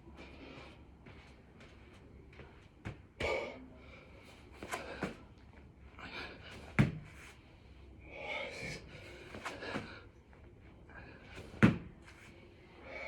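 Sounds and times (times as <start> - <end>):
hands and feet thudding on floor: 6.7 - 7.2, 11.4 - 12.2
hard breathing: 7.4 - 10.2, 12.7 - 13.0.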